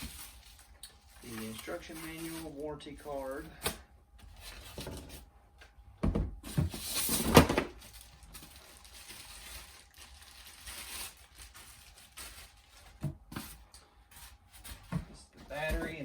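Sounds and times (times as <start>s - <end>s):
knocks and rustling of box contents: 14.5s - 16.0s.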